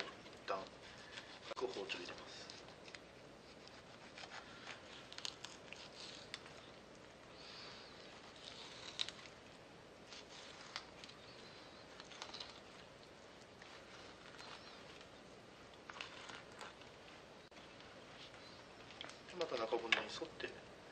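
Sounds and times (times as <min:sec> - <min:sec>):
knife cutting fish: 0:03.5 - 0:06.4.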